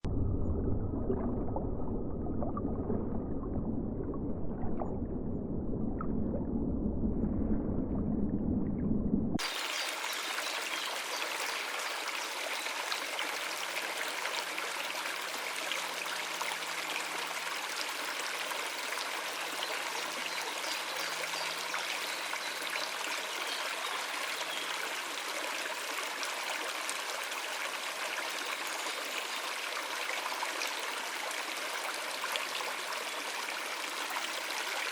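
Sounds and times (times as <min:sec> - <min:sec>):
running water rushing: 0:09.4 - 0:34.9.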